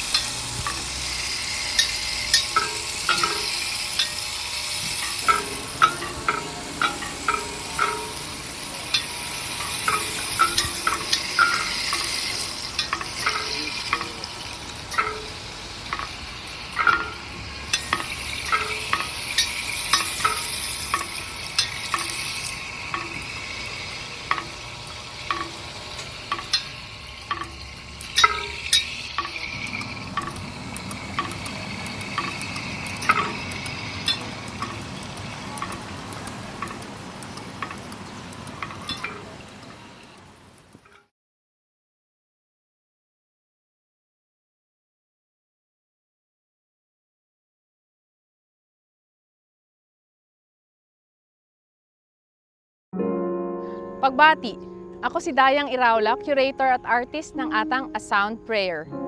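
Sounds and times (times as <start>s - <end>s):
utensil clinking against pan: 0.0s - 38.0s, 38.6s - 39.4s
food sizzling: 0.0s - 40.8s.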